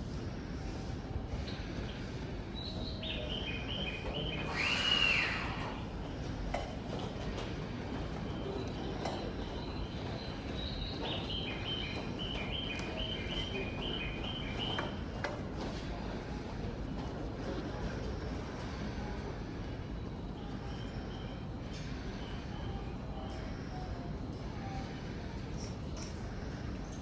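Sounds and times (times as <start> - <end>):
steady background noise: 0.0 - 27.0.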